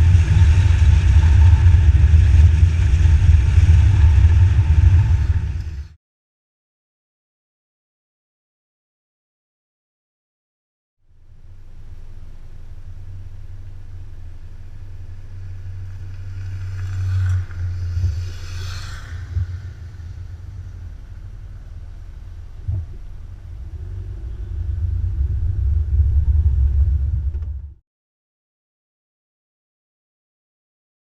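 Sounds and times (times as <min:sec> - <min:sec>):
motorcycle engine rumble: 0:00.0 - 0:06.0, 0:11.1 - 0:27.8
wind noise on microphone: 0:00.0 - 0:06.0, 0:16.2 - 0:27.8.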